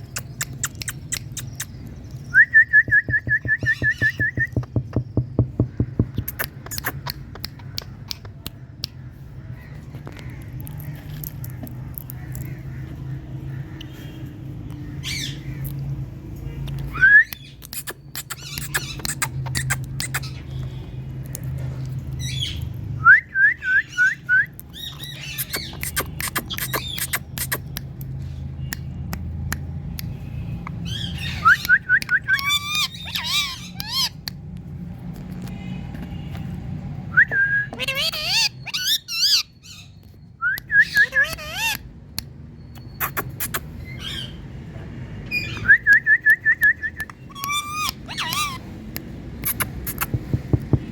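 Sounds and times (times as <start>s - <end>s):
sharp clicks: 0.0s - 2.0s
parakeets squawking: 3.6s - 8.4s, 14.8s - 15.9s, 16.9s - 20.9s, 24.7s - 27.7s, 30.7s - 31.7s, 32.3s - 34.3s, 37.7s - 40.0s, 40.8s - 42.0s, 42.8s - 44.6s, 47.0s - 50.9s.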